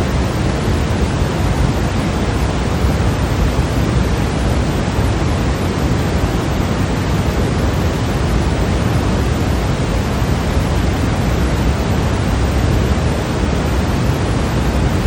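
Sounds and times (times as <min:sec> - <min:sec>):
steady white noise hiss: 0:00.0 - 0:15.0.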